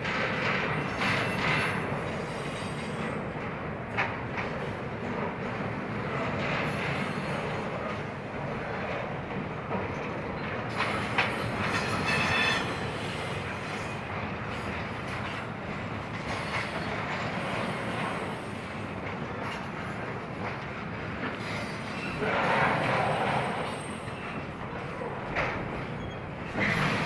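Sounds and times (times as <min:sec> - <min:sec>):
train cars rumbling on rails: 0:00.0 - 0:27.0
high wheel squeal: 0:10.9 - 0:14.0, 0:25.8 - 0:27.0.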